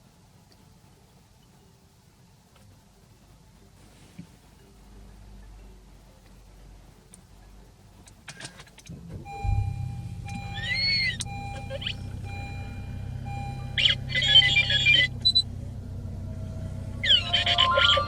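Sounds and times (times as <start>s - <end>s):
car engine starting and idling: 7.1s - 18.0s
dashboard beeps and chimes: 9.3s - 15.1s, 17.1s - 18.0s.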